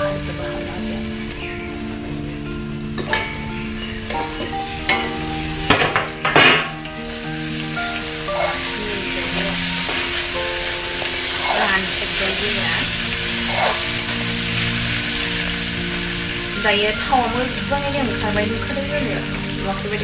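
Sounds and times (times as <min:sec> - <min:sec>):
background music held notes: 0:00.0 - 0:20.0
pork sizzling in wok: 0:00.0 - 0:20.0
metal spatula scraping pan: 0:08.3 - 0:08.8, 0:11.0 - 0:14.2.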